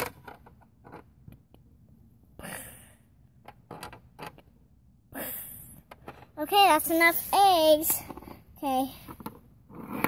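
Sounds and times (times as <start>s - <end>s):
soft rush of noise: 6.4s - 9.1s.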